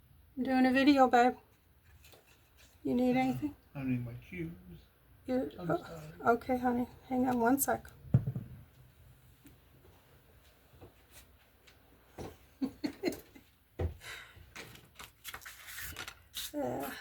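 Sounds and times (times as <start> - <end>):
faint knocks and thumps: 8.0 - 8.8.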